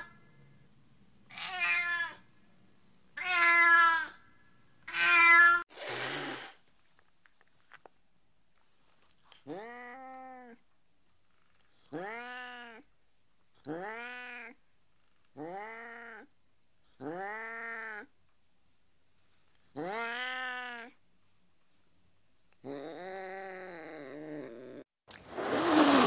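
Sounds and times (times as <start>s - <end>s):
cat meowing: 1.3s - 2.2s, 3.2s - 4.2s, 4.9s - 5.6s, 11.9s - 12.9s, 19.8s - 21.0s.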